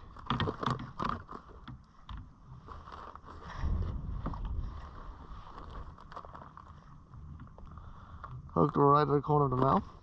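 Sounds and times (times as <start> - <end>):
handling knocks and clicks: 0.1 - 2.3
wind buffeting microphone: 3.4 - 5.9.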